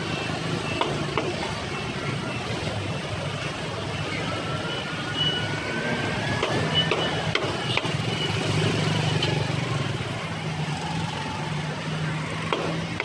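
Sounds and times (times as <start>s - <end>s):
sharp clicks and knocks: 6.4s - 8.0s, 12.5s - 13.0s.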